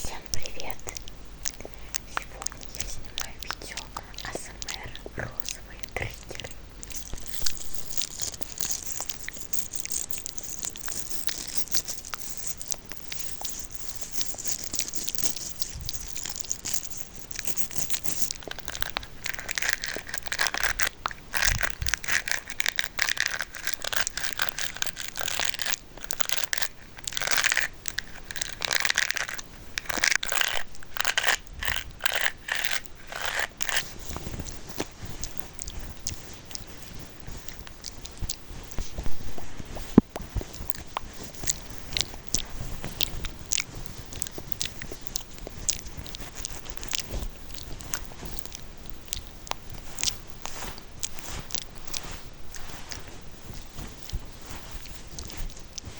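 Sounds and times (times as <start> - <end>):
crinkling and crackling: 0.0 - 55.9.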